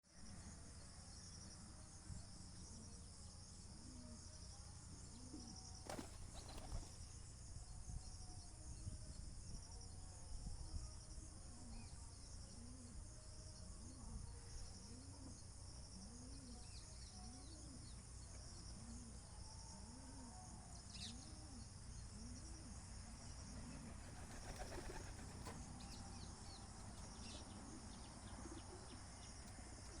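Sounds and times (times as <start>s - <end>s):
wings flapping: 5.8s - 7.0s, 23.8s - 25.6s.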